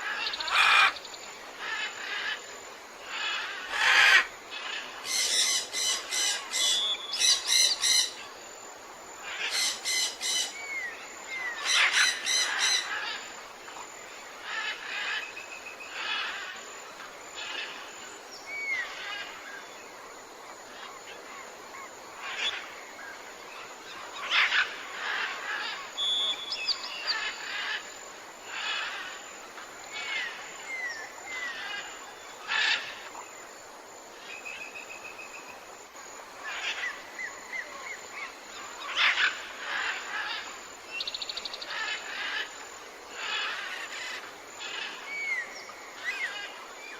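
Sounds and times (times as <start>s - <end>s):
tropical birds squawking: 0.0s - 2.4s, 3.1s - 8.2s, 9.2s - 13.3s, 36.4s - 46.9s.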